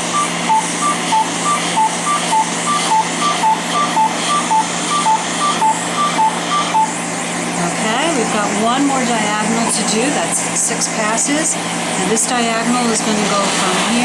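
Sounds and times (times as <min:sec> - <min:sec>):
alternating high and low beeps: 0:00.0 - 0:07.0.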